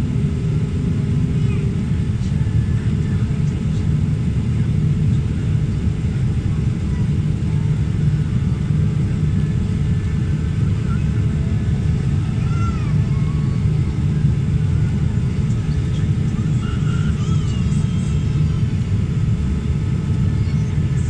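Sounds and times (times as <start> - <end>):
airliner engines rumbling: 0.0 - 21.0.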